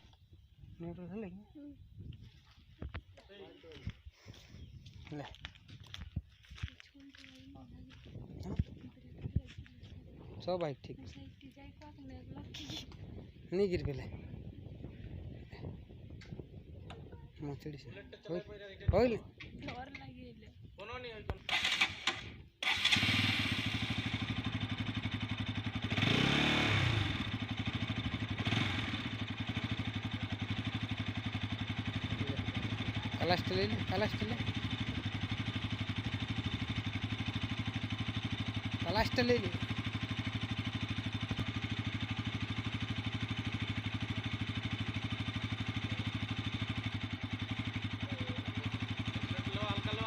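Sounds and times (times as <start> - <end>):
motorcycle engine idling and revving: 0.0 - 50.0.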